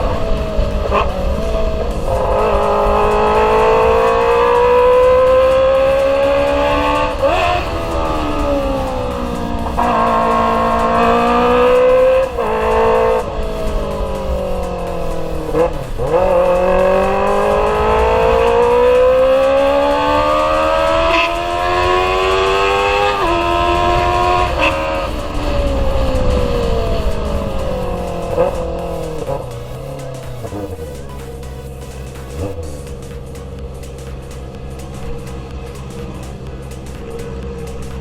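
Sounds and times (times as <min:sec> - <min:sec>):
motorcycle accelerating through gears: 0:00.0 - 0:38.0.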